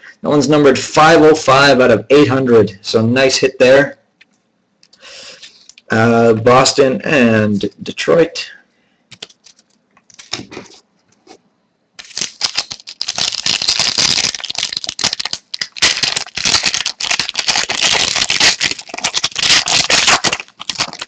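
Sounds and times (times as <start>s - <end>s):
foil wrapper crinkling: 9.1s - 10.8s, 12.0s - 21.0s
cards shuffled: 9.1s - 11.4s, 12.0s - 21.0s.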